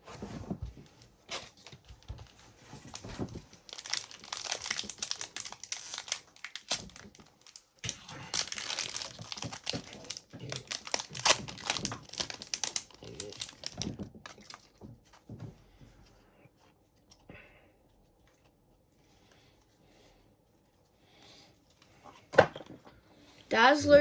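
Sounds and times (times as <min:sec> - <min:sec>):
wrapper tearing and crinkling: 0:01.3 - 0:14.8.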